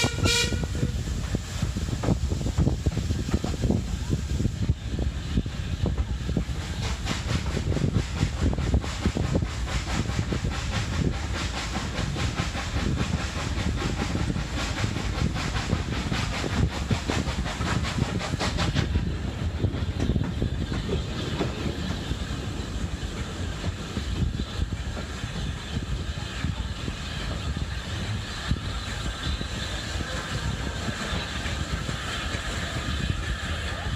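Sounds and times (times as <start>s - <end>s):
steam hiss: 0.0s - 33.9s
steam locomotive exhaust beats: 0.0s - 33.9s
train wheels on rail joints: 0.0s - 33.9s.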